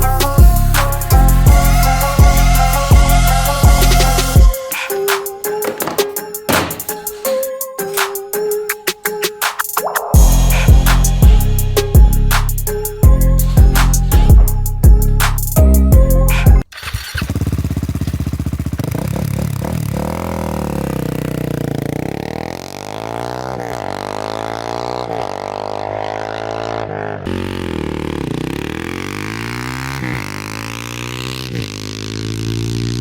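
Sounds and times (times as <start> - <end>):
music with heavy drum beat: 0.0 - 7.3, 9.4 - 16.6
motorcycle engine revving: 5.6 - 8.0, 16.6 - 33.0.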